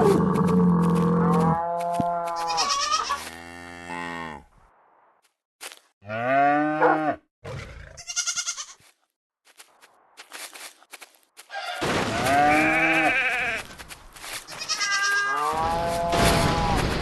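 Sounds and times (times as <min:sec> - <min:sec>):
goat or sheep bleating: 0:01.3 - 0:03.4, 0:08.0 - 0:08.9, 0:12.1 - 0:13.8, 0:14.4 - 0:16.8.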